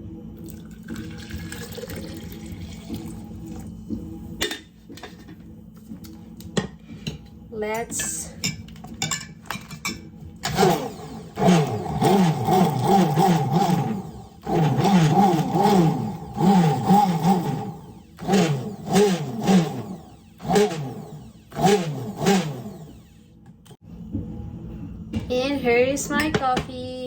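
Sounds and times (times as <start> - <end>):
electric drink mixer whirring: 10.4 - 23.3.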